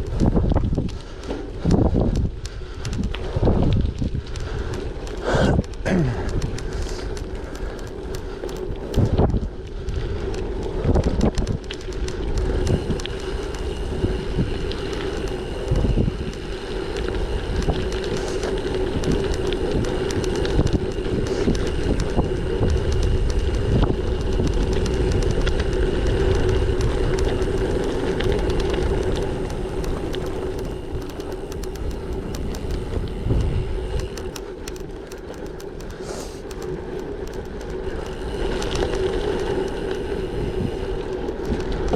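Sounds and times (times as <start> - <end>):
bicycle tyre hum: 0.0 - 41.9
wind rumble on microphone: 0.0 - 41.9
bike knocks and rattles: 28.2 - 38.4.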